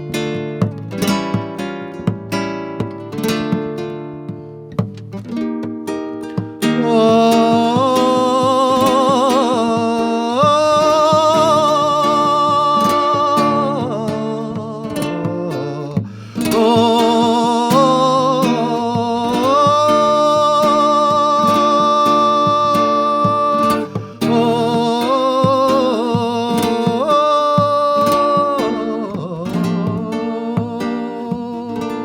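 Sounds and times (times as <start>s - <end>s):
plucked acoustic guitar: 0.0s - 32.0s
person singing wordless notes: 6.7s - 32.0s.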